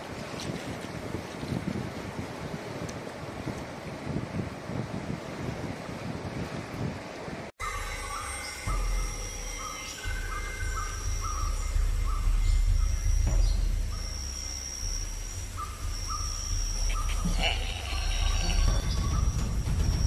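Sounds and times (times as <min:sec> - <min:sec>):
bird calling repeated notes: 0:07.6 - 0:20.0
low steady rumble: 0:08.6 - 0:20.0.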